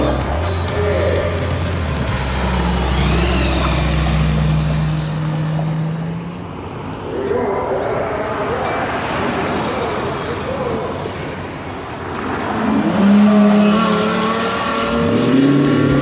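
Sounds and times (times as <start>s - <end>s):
wavering voice-like sounds: 0.0s - 4.6s
background noise: 0.0s - 16.0s
car engine droning: 0.0s - 16.0s.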